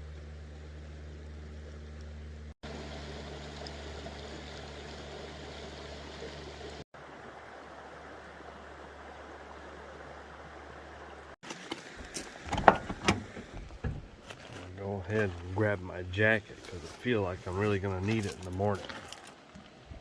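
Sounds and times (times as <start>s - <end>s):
low steady hum: 0.0s - 11.4s
creek rushing: 2.7s - 20.0s.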